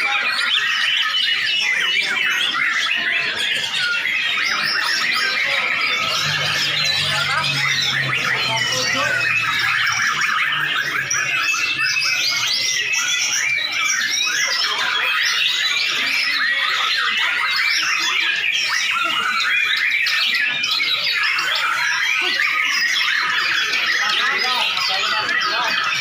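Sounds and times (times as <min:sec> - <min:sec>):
birds singing in chorus: 0:00.0 - 0:26.0.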